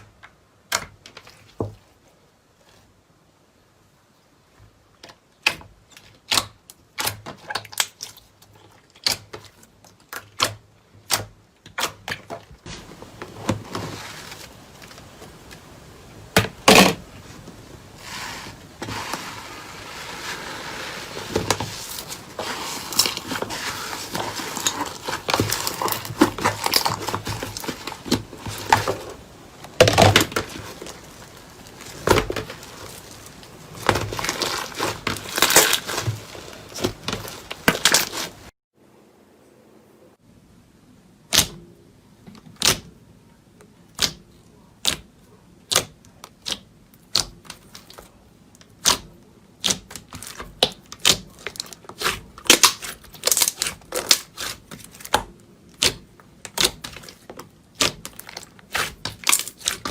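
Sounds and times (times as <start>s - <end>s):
slime squished by hand: 43.9s - 59.9s.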